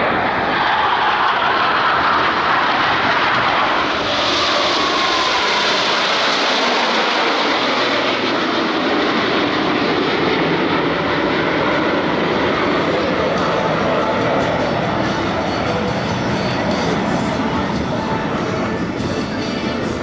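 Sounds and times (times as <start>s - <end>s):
jet engine roar: 0.0s - 20.0s
passing jet whine: 0.0s - 20.0s.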